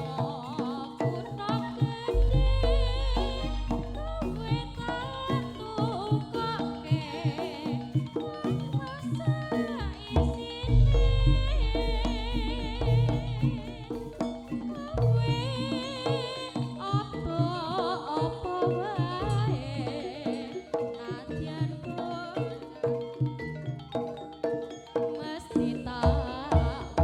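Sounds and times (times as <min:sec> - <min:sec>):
high wavering melody: 0:00.0 - 0:26.0
drums beating: 0:00.0 - 0:27.0
steady pitched tones: 0:02.1 - 0:06.9, 0:08.8 - 0:17.3.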